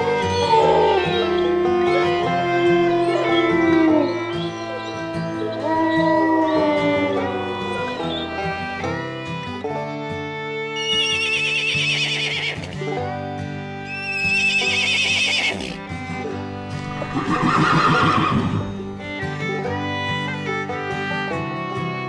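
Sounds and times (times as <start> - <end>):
zebra braying call: 0.0 - 8.8, 16.7 - 19.0
string-band music: 0.0 - 22.0
zebra whinny-like calls: 13.9 - 15.8, 16.8 - 18.9.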